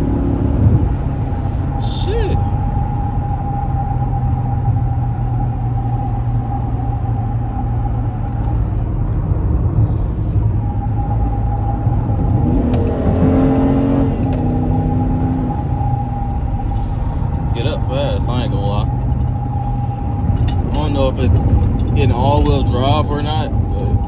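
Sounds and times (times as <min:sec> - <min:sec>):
car engine accelerating: 0:00.0 - 0:24.0
constant whine: 0:00.0 - 0:24.0.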